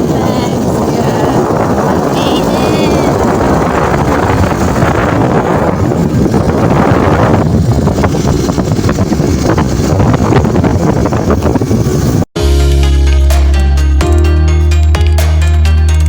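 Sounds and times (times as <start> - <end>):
wind buffeting microphone: 0.0 - 12.3
motorcycle engine running: 0.0 - 14.2.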